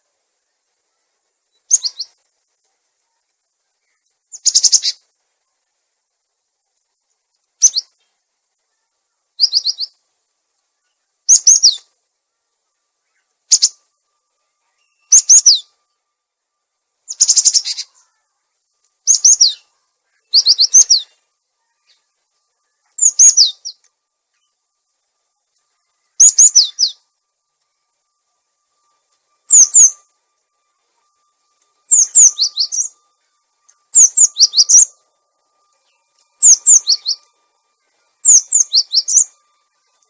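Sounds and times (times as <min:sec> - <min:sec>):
high sharp bird chirps: 0:01.6 - 0:02.2, 0:04.3 - 0:05.0, 0:07.6 - 0:08.0, 0:09.4 - 0:10.0, 0:10.8 - 0:11.9, 0:13.0 - 0:13.9, 0:14.6 - 0:15.8, 0:17.1 - 0:18.2, 0:19.0 - 0:22.1, 0:22.7 - 0:24.5, 0:25.8 - 0:27.1, 0:29.0 - 0:30.1, 0:31.8 - 0:35.1, 0:35.7 - 0:37.4, 0:38.2 - 0:40.0.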